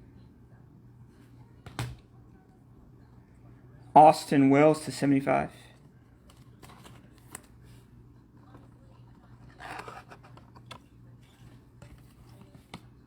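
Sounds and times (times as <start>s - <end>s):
card rustle: 6.2s - 7.9s, 8.5s - 12.9s.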